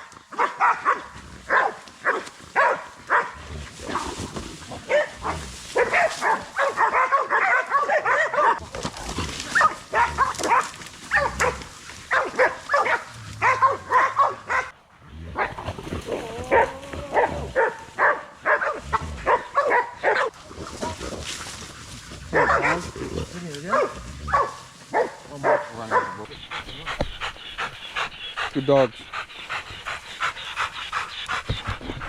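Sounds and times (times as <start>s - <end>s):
dogs barking: 0.0s - 8.6s, 9.5s - 32.0s.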